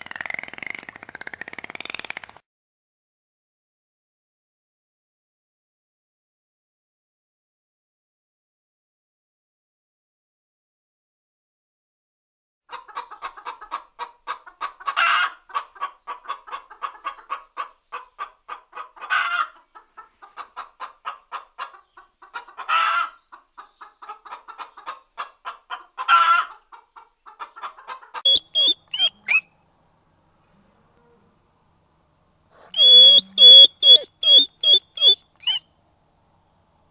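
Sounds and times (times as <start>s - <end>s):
chicken clucking: 12.7s - 29.4s, 32.6s - 35.6s
chicken squawking: 27.4s - 29.4s, 32.6s - 35.6s.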